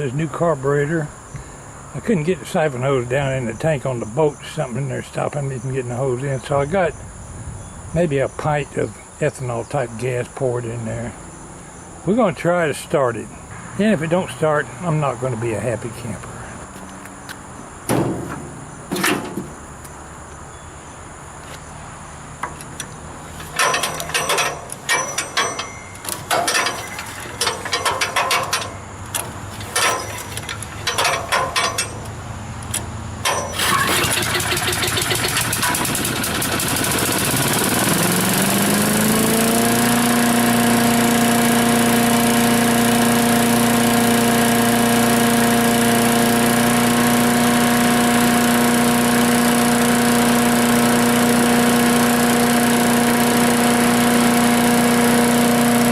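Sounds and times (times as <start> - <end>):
engine cranking and starting: 22.4 - 55.9.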